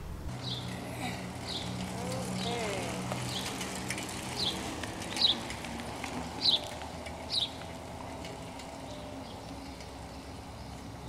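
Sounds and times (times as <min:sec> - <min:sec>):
bird chirping: 0:00.3 - 0:00.8, 0:06.4 - 0:07.7.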